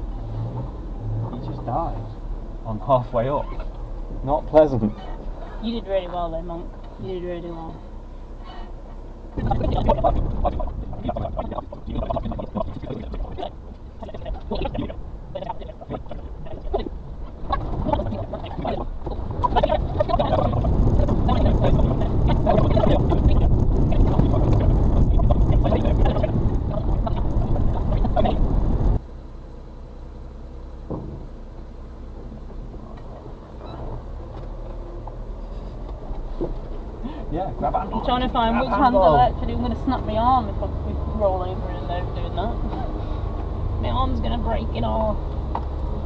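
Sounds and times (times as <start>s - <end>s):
truck engine rough clatter: 0.0s - 7.2s, 8.4s - 29.1s, 30.8s - 46.0s
short knock: 30.9s - 31.2s.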